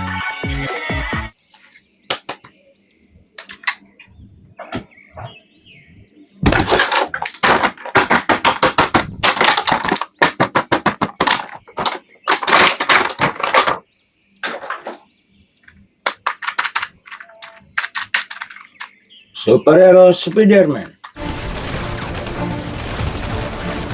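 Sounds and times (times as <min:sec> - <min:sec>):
toy packaging crackling: 0:06.6 - 0:13.7, 0:16.1 - 0:18.9, 0:21.2 - 0:23.9.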